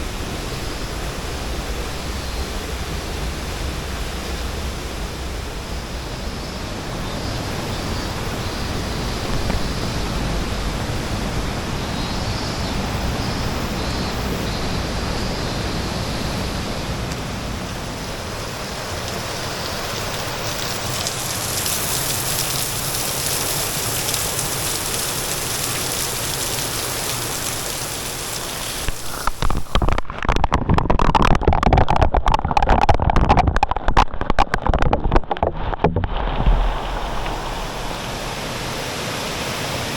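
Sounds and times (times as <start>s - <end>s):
waterfall rushing: 15.7s - 39.9s
wind buffeting microphone: 28.8s - 39.9s.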